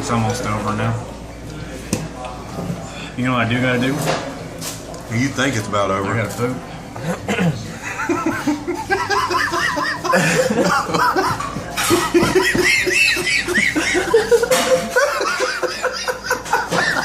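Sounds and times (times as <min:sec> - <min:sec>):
person coughing: 0:07.0 - 0:07.7
people laughing hard: 0:07.7 - 0:17.0.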